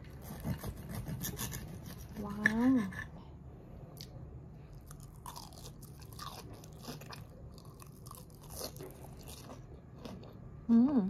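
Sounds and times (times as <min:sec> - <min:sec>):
person chewing crunchy food: 0:03.9 - 0:10.7.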